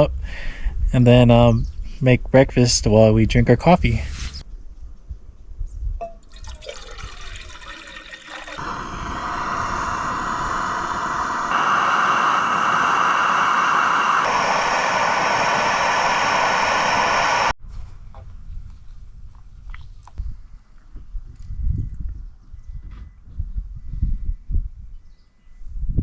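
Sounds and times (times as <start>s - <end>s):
water pouring into a pot: 6.2s - 9.6s.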